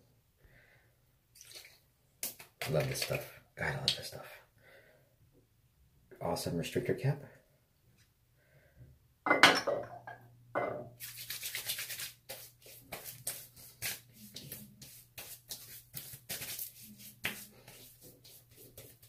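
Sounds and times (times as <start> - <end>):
hands rubbing and patting face: 2.2 - 4.2, 11.0 - 19.0.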